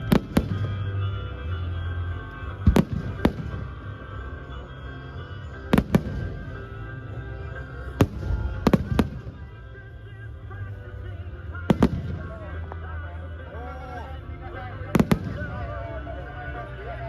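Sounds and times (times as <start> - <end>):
fireworks bursting with sharp bangs: 0.0 - 1.6, 2.4 - 4.4, 5.4 - 6.9, 7.9 - 9.8, 11.4 - 12.9, 14.9 - 16.0
steady music: 0.0 - 17.0.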